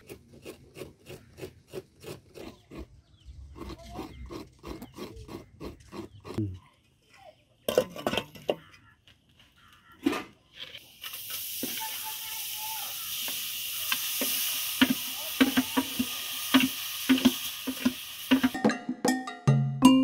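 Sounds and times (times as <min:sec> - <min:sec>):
food sizzling in hot oil: 0:10.8 - 0:18.6.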